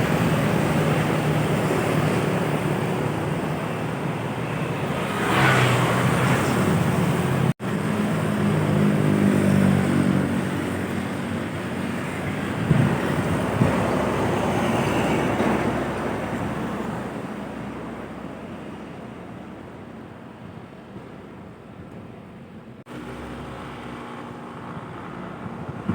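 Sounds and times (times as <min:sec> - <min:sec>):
heavy vehicle engine passing: 0:22.8 - 0:25.9.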